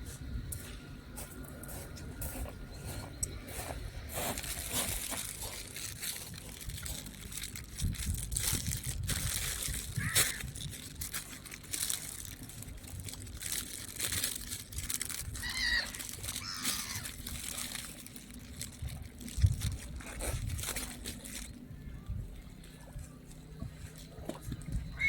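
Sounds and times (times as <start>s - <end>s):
rustling crackly noise: 3.0s - 25.0s
short wavering bird call: 15.4s - 17.0s.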